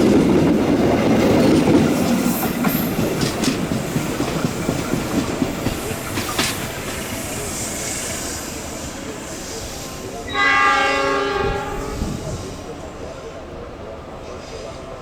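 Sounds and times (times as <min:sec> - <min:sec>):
train wheels rumbling: 0:00.0 - 0:15.0
locomotive horn: 0:10.3 - 0:12.3.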